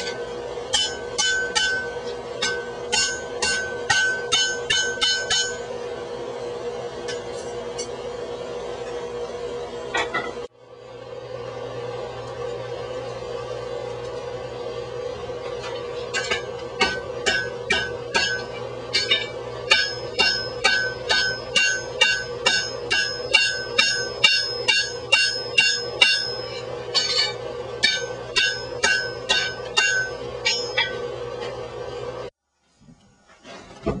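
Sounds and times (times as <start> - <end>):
hammer striking steel on anvil: 0.0 - 5.8, 15.6 - 31.2
steady hum: 0.0 - 34.0.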